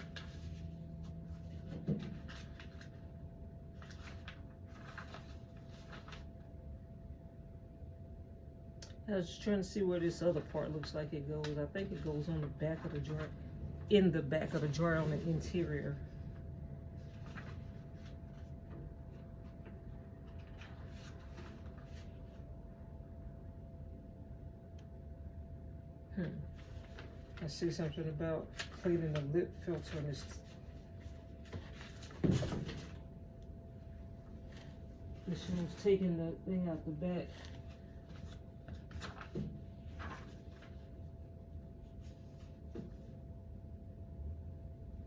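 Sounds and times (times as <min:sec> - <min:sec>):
paper rustling: 0:00.0 - 0:06.5, 0:10.3 - 0:13.5, 0:14.4 - 0:15.9, 0:17.0 - 0:22.4, 0:26.5 - 0:33.1, 0:34.0 - 0:35.9, 0:37.2 - 0:41.1.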